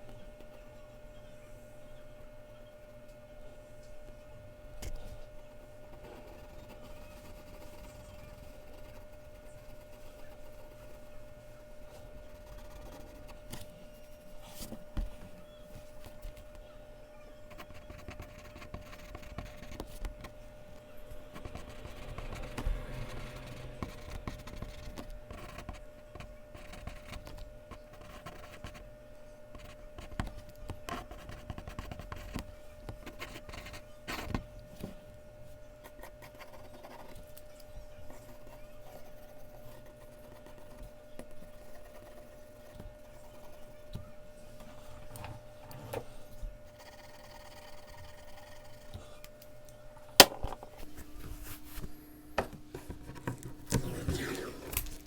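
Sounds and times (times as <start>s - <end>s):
faint steady hum: 0.0s - 55.0s
pencil scratching on paper: 5.8s - 15.3s, 17.5s - 20.4s, 21.3s - 28.8s, 29.5s - 34.5s, 35.8s - 37.3s, 38.1s - 44.0s, 46.7s - 49.2s, 53.0s - 54.7s
pencil taps: 50.2s - 50.6s.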